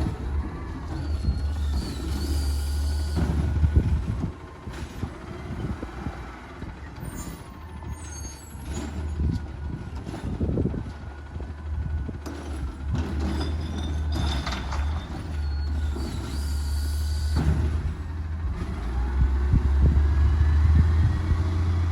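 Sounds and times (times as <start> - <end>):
truck diesel engine running: 0.0 - 21.9
high-pitched squeals: 0.2 - 3.9, 7.0 - 9.3, 13.4 - 17.4.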